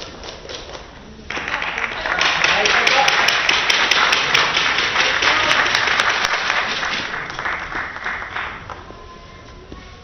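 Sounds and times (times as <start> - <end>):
spectators applauding: 1.3 - 8.9.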